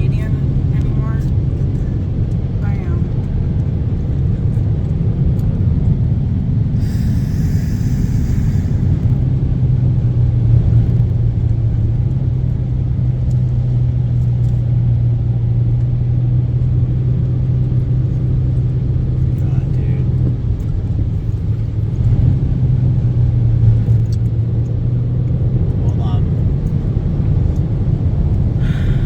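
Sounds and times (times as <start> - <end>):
car driving through flood water: 0.0 - 14.2, 16.7 - 29.0
engine hum: 0.0 - 29.0
brief hiss: 6.8 - 9.1.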